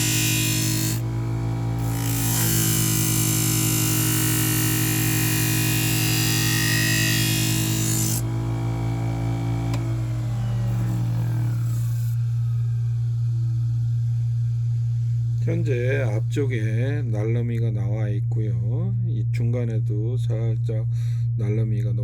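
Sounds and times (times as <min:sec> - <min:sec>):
knife grinding on wheel: 0:00.0 - 0:08.3
knife grinder motor humming: 0:00.0 - 0:15.6
click: 0:09.7 - 0:09.9.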